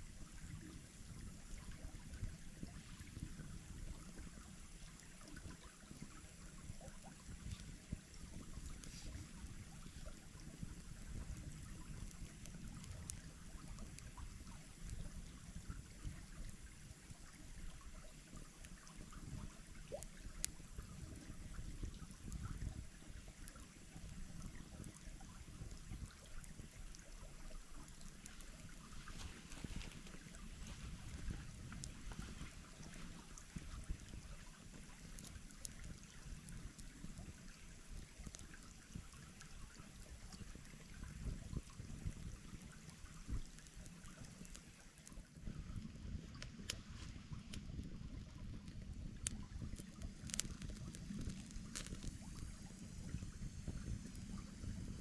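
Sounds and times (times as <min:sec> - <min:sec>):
shallow stream trickling: 0:00.0 - 0:55.0
faint clicks: 0:00.4 - 0:55.0.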